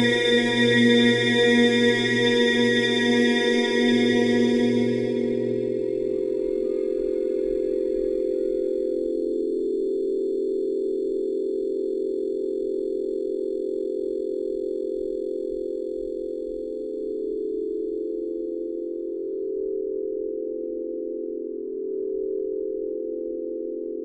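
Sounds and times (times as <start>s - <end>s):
low droning tones: 0.0s - 9.5s.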